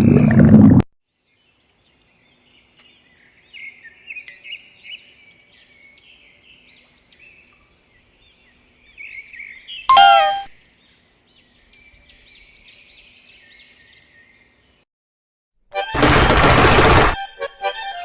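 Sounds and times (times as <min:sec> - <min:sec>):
faint birds chirping: 0:01.1 - 0:14.8.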